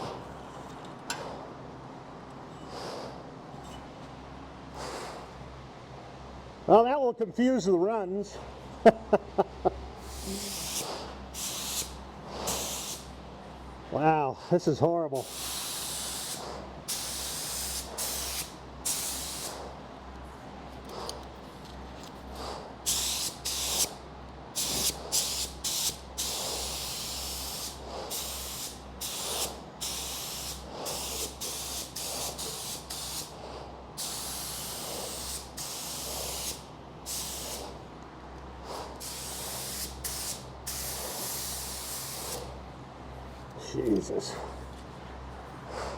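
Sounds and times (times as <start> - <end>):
steady low hum: 0.0 - 45.9
spray gun hissing: 10.0 - 13.1, 15.2 - 19.6, 22.4 - 24.0, 24.6 - 37.8, 38.8 - 42.5.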